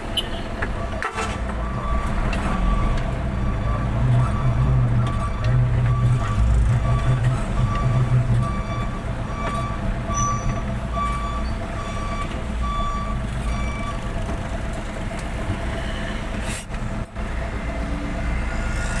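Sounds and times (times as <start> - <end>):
truck engine running: 0.0 - 19.0
truck reversing alarm beeping: 0.2 - 14.3.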